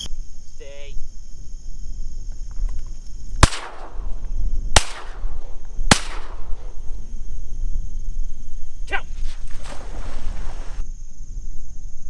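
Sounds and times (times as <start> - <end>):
high insect buzz: 0.0 - 12.0
shotgun shots echoing: 3.4 - 4.2, 4.8 - 6.8.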